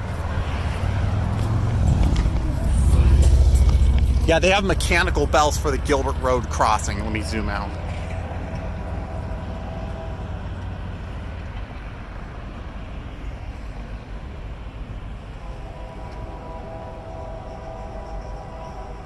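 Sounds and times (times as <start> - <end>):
train horn tones: 0.0 - 12.1, 15.2 - 19.0
train rumbling: 0.0 - 19.0.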